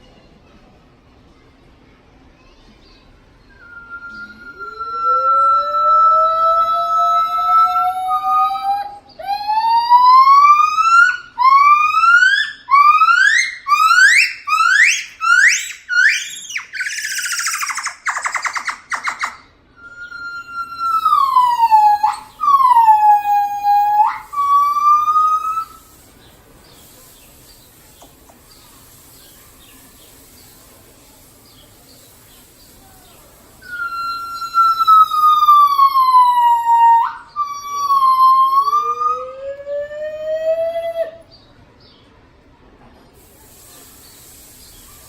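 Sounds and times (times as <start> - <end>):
lower rising call: 3.5 - 25.9, 33.6 - 41.3
gibbons calling: 3.6 - 30.6, 33.1 - 41.3.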